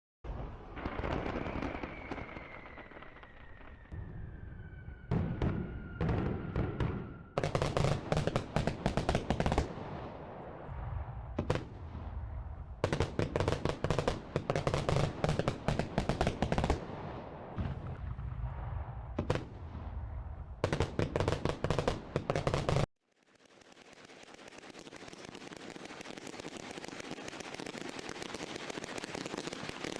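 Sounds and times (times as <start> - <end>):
fireworks crackling: 0.3 - 4.0, 7.4 - 17.6, 20.6 - 29.9
firework whistle: 0.7 - 8.0.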